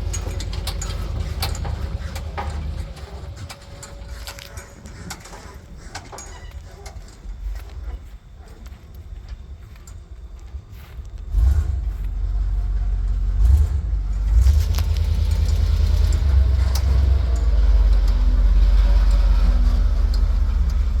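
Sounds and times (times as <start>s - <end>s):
truck engine rumbling: 0.0s - 21.0s.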